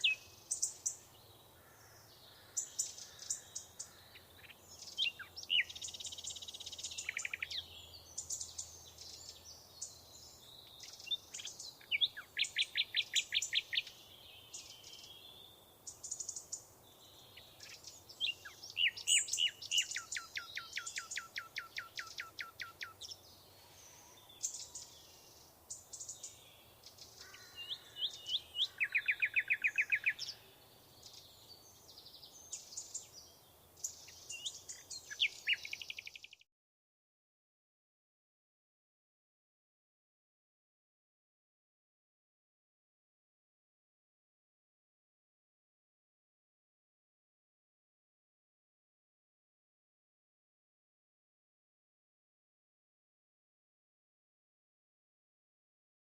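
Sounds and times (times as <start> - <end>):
songbirds singing and chirping: 0.0 - 36.4.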